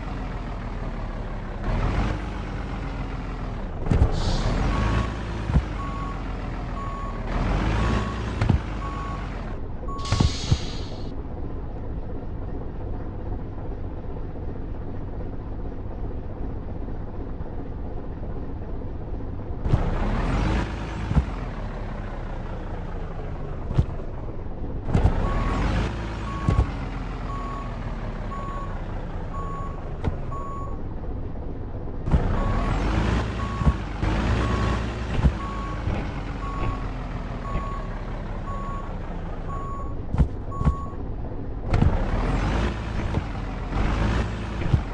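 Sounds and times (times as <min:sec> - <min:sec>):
truck engine rumbling: 0:00.0 - 0:44.9
short electronic beeps: 0:09.9 - 0:10.6, 0:25.2 - 0:27.7, 0:39.5 - 0:41.0.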